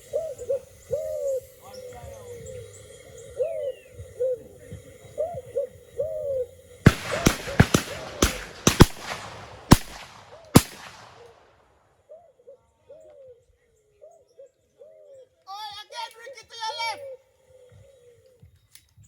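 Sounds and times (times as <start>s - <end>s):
bird cooing: 0.0s - 8.5s, 12.1s - 15.4s, 17.0s - 18.5s
shotgun shots: 6.9s - 11.6s.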